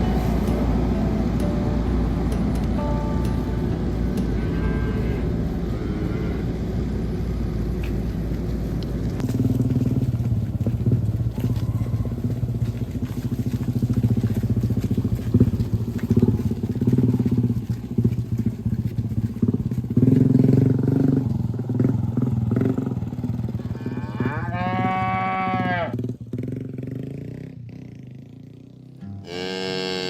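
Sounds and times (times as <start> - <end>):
low motor drone: 0.0 - 24.5
cattle mooing: 4.1 - 6.8, 23.6 - 26.0, 29.1 - 30.0.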